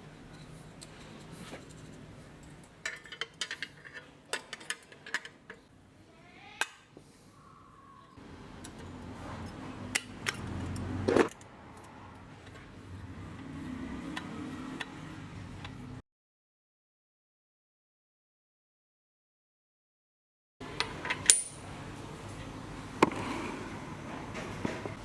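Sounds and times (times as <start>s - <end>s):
metal tools clinking: 21.1s - 21.6s.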